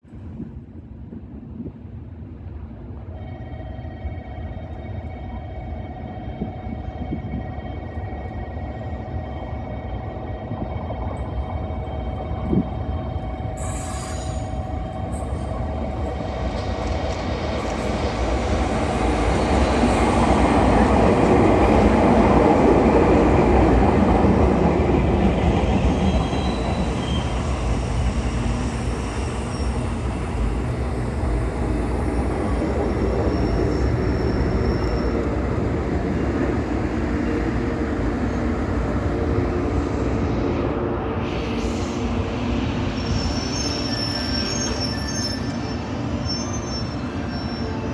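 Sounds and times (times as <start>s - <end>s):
train running into station: 0.0s - 47.9s
faint high wheel squeals: 13.5s - 16.8s, 25.7s - 35.5s, 42.8s - 47.9s.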